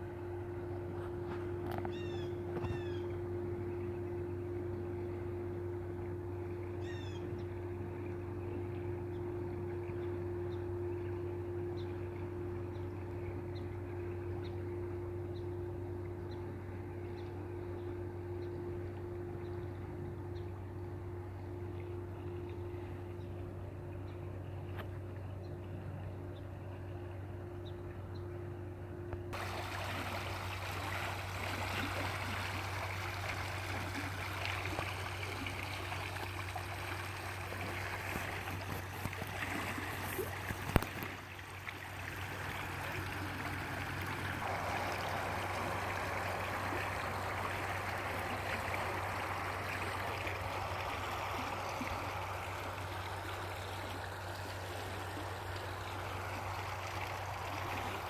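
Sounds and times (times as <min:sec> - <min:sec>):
constant low hum: 0:00.0 - 0:58.0
stream water flowing: 0:29.3 - 0:58.0.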